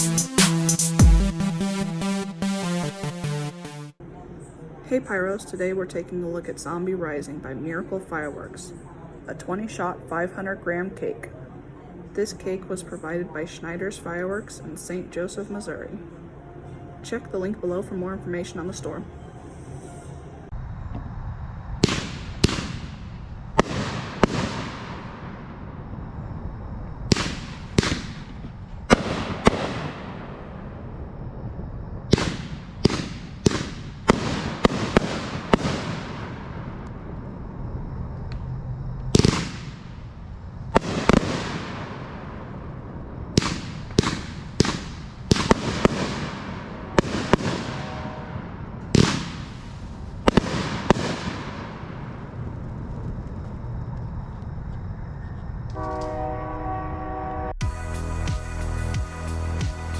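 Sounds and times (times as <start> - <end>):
firework bangs with crackling: 21.8 - 25.6, 27.1 - 30.6, 32.1 - 36.8, 39.1 - 40.0, 40.7 - 42.5, 43.4 - 52.3.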